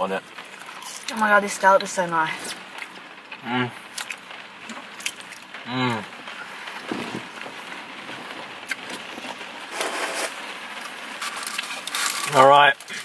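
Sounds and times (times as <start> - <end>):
chewing crunchy food: 3.9 - 5.5.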